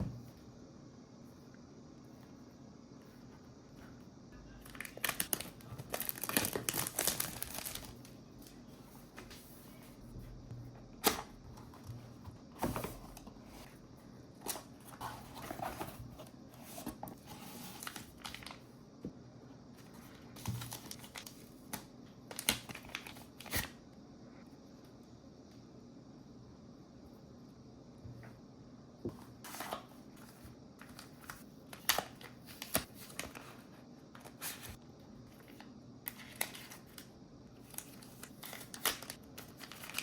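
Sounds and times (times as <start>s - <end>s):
packaging tearing and crinkling: 4.7s - 8.0s, 37.7s - 40.0s.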